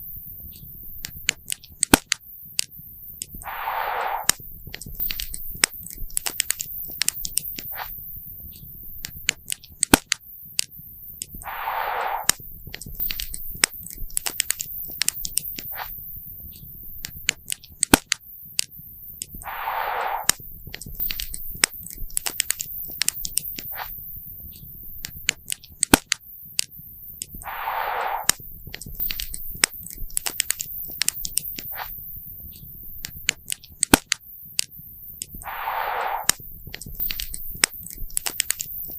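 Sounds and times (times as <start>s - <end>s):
soft hissing rush: 3.4s - 4.5s, 11.4s - 12.5s, 19.1s - 20.5s, 27.1s - 32.4s, 35.1s - 38.0s.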